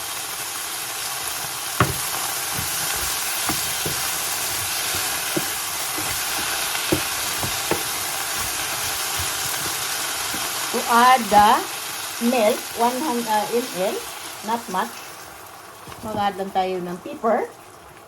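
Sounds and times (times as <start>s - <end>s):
food sizzling in hot oil: 0.0s - 18.0s
utensil knocking against pan: 1.8s - 11.6s.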